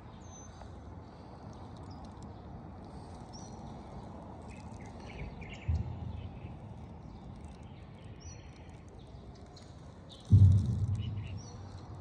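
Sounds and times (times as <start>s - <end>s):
steady background noise: 0.0s - 12.0s
low thump: 10.3s - 12.0s.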